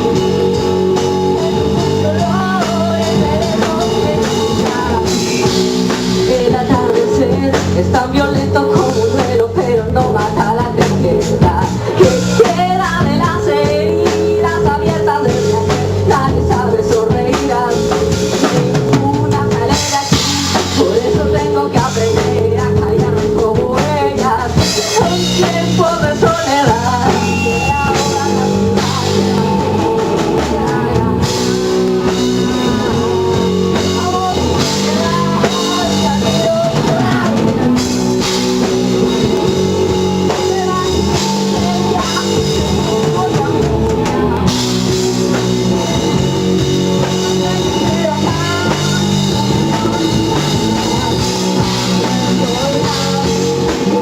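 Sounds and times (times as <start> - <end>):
live rock band playing: 0.0 - 54.0
person singing: 0.0 - 54.0.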